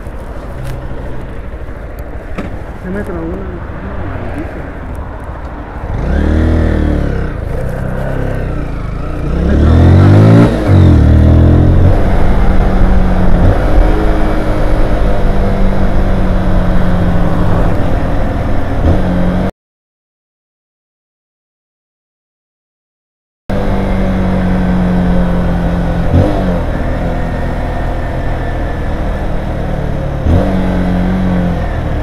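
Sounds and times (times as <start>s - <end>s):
motorcycle engine revving: 5.7s - 19.5s, 23.5s - 32.0s.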